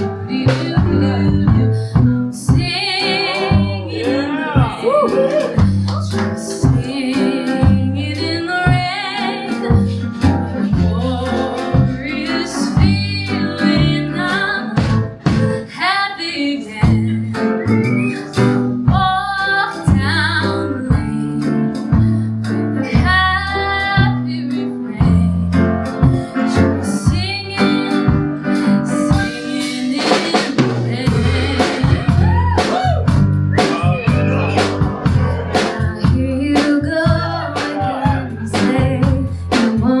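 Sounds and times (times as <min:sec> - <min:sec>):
person singing: 0:00.0 - 0:17.6, 0:26.2 - 0:33.0, 0:33.6 - 0:40.0
live folk-rock band: 0:00.0 - 0:40.0.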